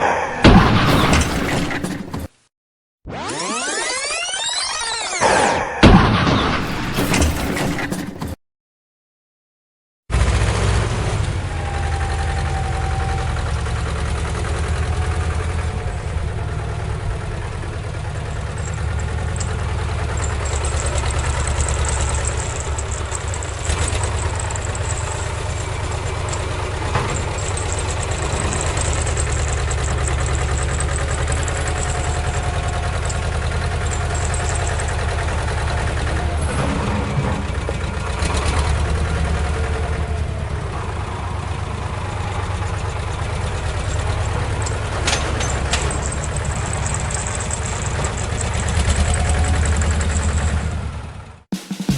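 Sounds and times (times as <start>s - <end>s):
engine idling: 10.1s - 51.4s.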